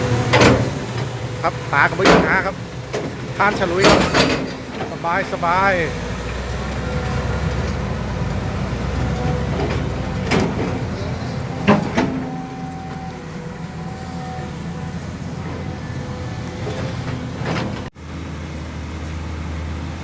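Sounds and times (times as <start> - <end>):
loud metallic clanks: 0.0 - 8.0, 8.9 - 13.7
diesel truck engine rumbling: 0.0 - 20.0.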